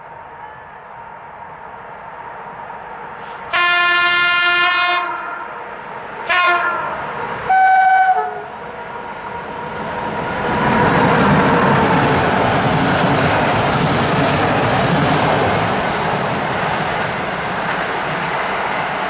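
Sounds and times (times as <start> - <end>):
train running noise: 0.0 - 19.0
locomotive horn blasts: 3.2 - 5.5, 6.3 - 8.5.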